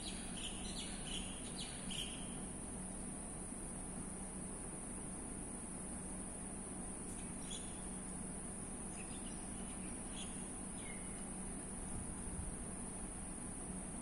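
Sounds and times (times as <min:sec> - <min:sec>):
faint bird chirps: 0:00.0 - 0:02.5, 0:07.1 - 0:08.0, 0:08.9 - 0:11.3.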